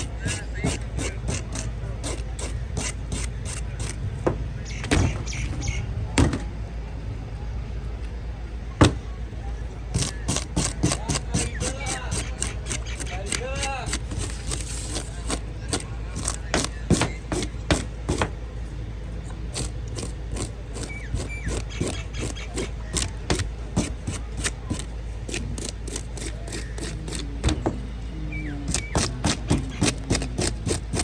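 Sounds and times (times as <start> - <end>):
steady low hum: 0.0 - 31.0
knife chopping on wooden board: 8.8 - 9.0, 15.3 - 18.4, 19.6 - 27.8, 28.7 - 31.0.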